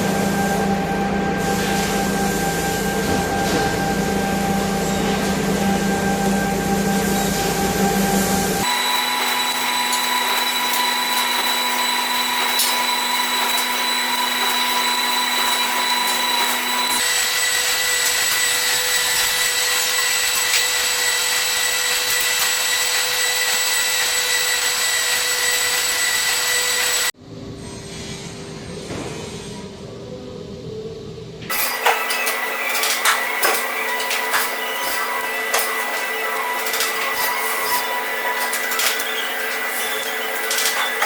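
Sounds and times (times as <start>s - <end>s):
electric power tool whining: 8.6s - 27.2s, 31.5s - 41.0s.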